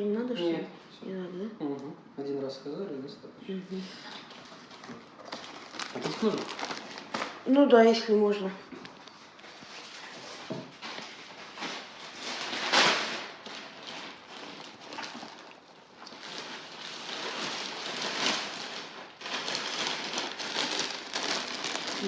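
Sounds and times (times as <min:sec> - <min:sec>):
plastic packaging rustling: 0:04.1 - 0:08.1, 0:08.7 - 0:22.0.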